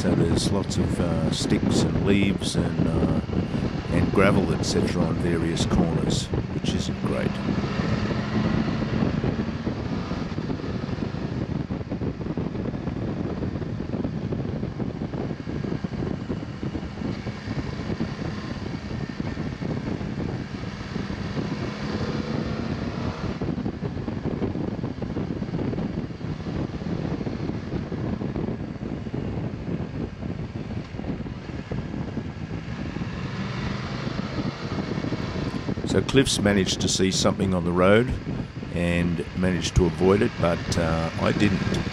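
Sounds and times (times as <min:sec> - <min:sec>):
wind rush: 0:00.0 - 0:41.9
motorcycle engine running: 0:02.8 - 0:35.9.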